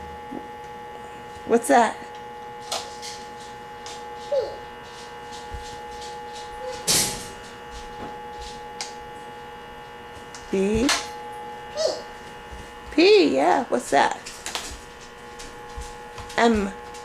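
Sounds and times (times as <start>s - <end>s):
electrical hum: 0.0s - 17.0s
small child vocal sound: 4.3s - 4.7s, 11.8s - 12.1s.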